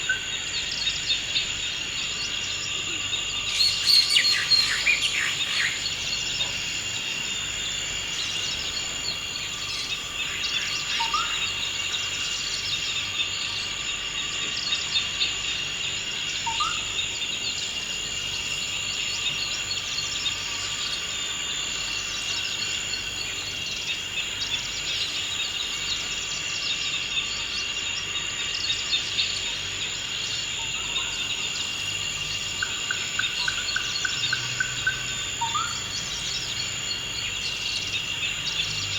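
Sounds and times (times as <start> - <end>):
insect chorus trilling: 0.0 - 38.9
bird calls: 3.4 - 11.8.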